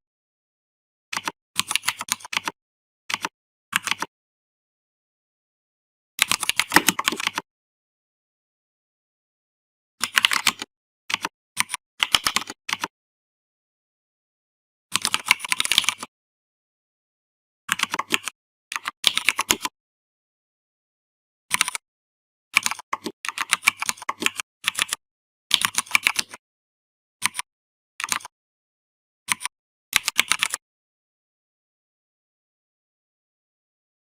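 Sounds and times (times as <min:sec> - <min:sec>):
typing on computer keyboard: 0:01.1 - 0:04.1, 0:06.2 - 0:07.4, 0:10.0 - 0:12.9, 0:14.9 - 0:16.1, 0:17.7 - 0:19.7, 0:21.5 - 0:21.8, 0:22.6 - 0:26.4, 0:27.2 - 0:27.4, 0:28.0 - 0:28.3, 0:29.3 - 0:30.6.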